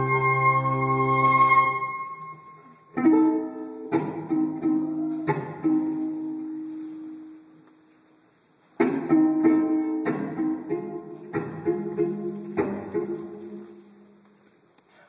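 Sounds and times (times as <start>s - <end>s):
held flute-like tone: 0.0s - 3.0s
violin plucked pizzicato: 0.0s - 7.4s, 8.8s - 14.0s.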